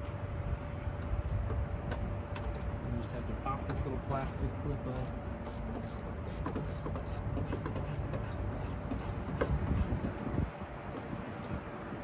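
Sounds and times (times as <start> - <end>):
hand tools clicking and rattling: 4.2 - 10.0.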